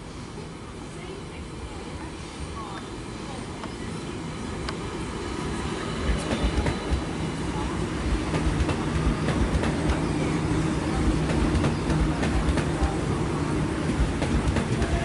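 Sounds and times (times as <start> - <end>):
train rumble: 0.0 - 15.0
train wheels clicking over rail joints: 6.1 - 7.2, 8.1 - 10.1, 11.0 - 13.0, 13.8 - 15.0.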